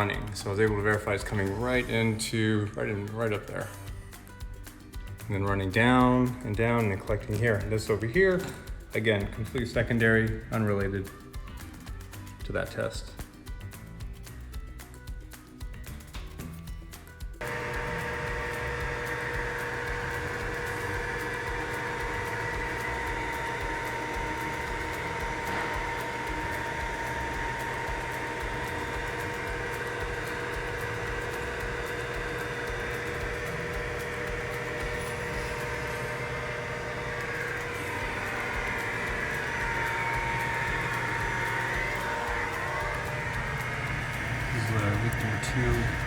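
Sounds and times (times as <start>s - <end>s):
motor humming: 17.4s - 46.0s.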